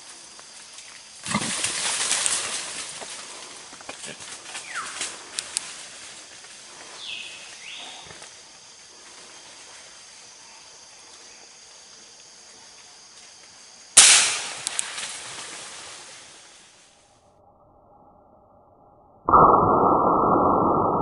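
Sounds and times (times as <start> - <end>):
high insect drone: 0.0 - 17.5
gunshot: 14.0 - 14.7.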